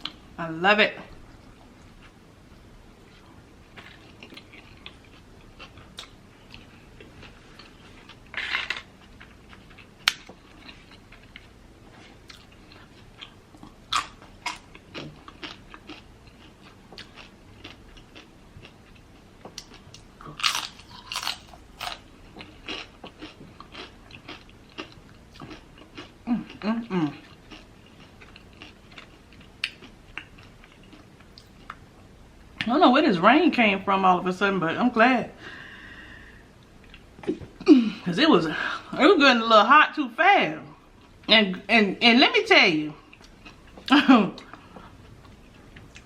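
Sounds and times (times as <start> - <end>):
chewing and crunching food: 3.0 - 31.9, 43.0 - 46.0.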